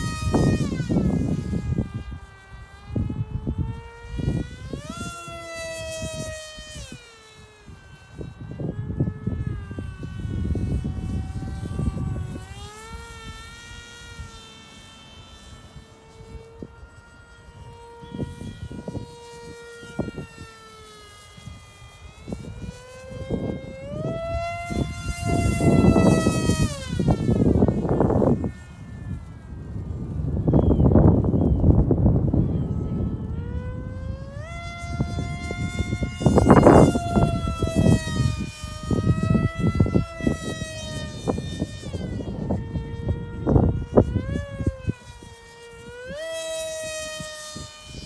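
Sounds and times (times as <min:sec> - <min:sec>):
model plane motor whining: 0:00.0 - 0:48.0
wind buffeting microphone: 0:00.0 - 0:48.0.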